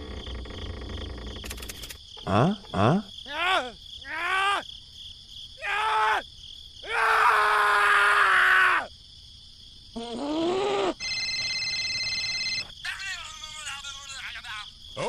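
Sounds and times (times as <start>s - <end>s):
cartoonish vocal groans: 2.2s - 3.1s, 10.0s - 11.0s.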